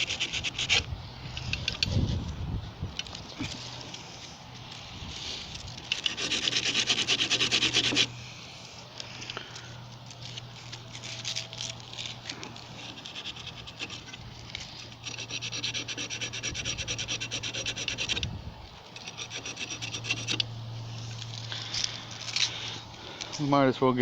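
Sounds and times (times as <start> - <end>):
abrasive scrubbing on metal: 12.6 - 18.2, 19.0 - 20.5.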